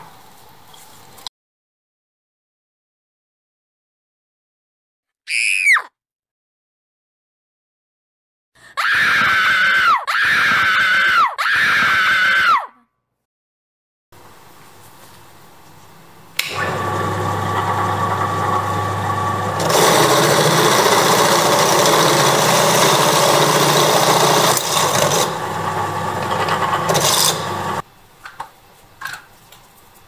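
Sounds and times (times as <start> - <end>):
drill press motor humming: 16.4 - 27.8
drill bit grinding metal: 16.6 - 27.8.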